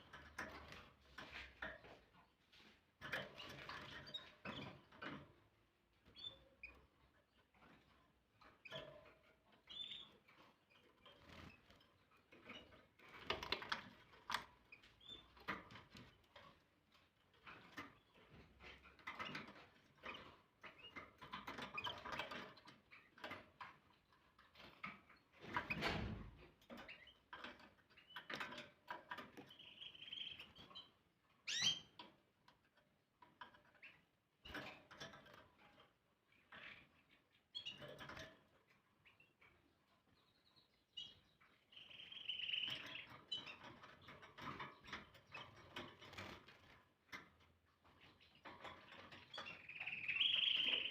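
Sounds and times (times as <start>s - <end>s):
canary chirps: 6.0s - 6.8s, 9.6s - 12.7s, 14.7s - 15.5s, 26.7s - 32.1s, 36.3s - 38.2s, 38.9s - 46.2s, 47.8s - 50.9s.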